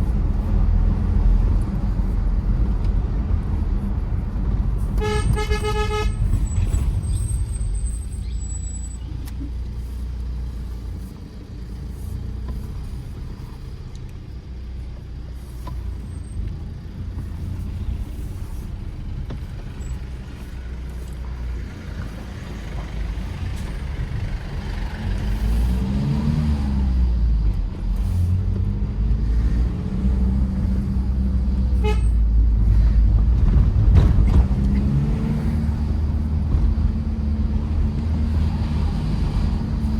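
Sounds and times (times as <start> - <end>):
diesel engine driving: 0.0 - 39.9
tyres on road: 0.0 - 39.9
faint car horn toot: 5.0 - 6.7, 31.8 - 32.2.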